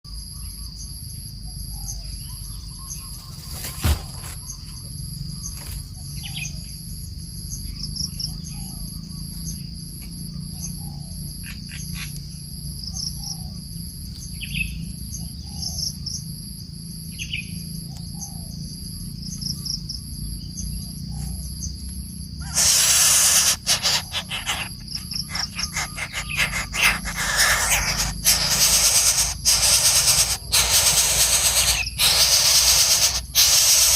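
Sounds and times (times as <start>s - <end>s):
insects shrilling: 22.3s - 33.9s
coucal low falling calls: 22.4s - 33.9s
higher bird chirps: 22.4s - 33.9s.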